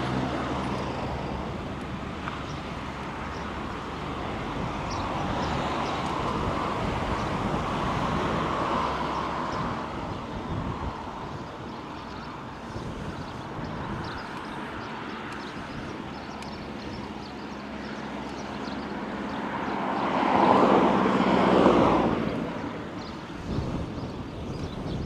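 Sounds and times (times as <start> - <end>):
road traffic rushing past: 0.0 - 25.0
wind noise: 0.0 - 25.0.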